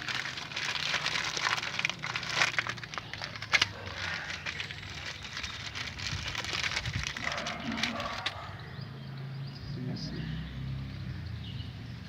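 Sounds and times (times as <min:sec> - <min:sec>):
rustling and crinkling: 0:00.0 - 0:08.5.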